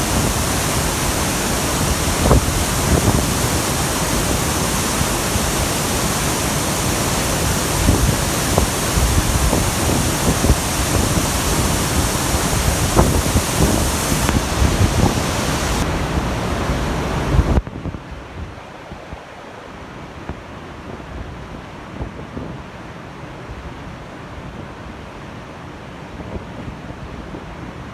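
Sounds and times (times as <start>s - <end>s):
waterfall rushing: 0.0s - 17.6s
wind buffeting microphone: 0.0s - 18.0s.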